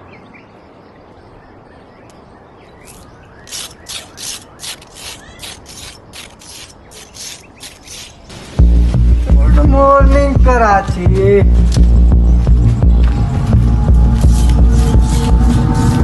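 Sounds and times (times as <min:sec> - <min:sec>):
short scratchy rasps: 0:02.9 - 0:08.4.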